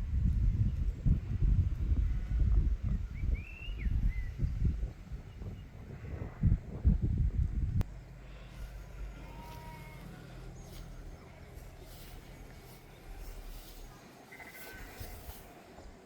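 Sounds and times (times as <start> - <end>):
low rumbling bursts: 0.0 - 14.2
steady low rumble: 0.0 - 16.0
faint animal bleats: 8.2 - 11.2.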